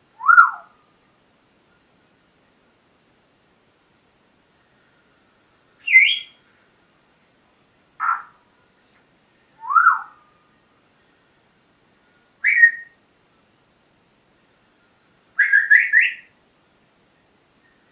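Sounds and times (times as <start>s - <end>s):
parrot whistling and squawking: 0.2s - 0.7s, 5.9s - 6.3s, 8.0s - 10.2s, 12.4s - 12.9s, 15.4s - 16.3s.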